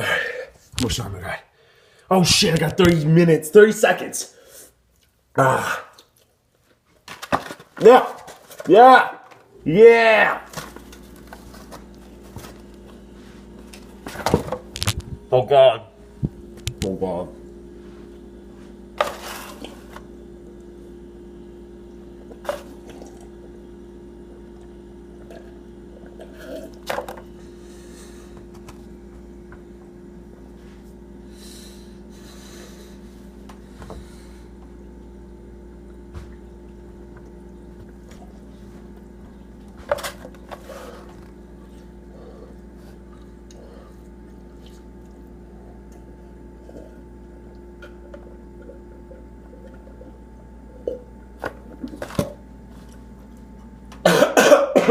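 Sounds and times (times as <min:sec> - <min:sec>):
electrical hum: 0:00.0 - 0:54.9
wet squishy chewing: 0:42.6 - 0:47.7.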